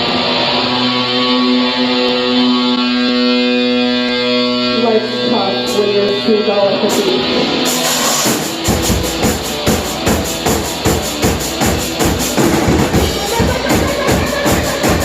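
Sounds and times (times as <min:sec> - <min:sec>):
band playing: 0:00.0 - 0:15.0
drum kit beat: 0:06.8 - 0:15.0.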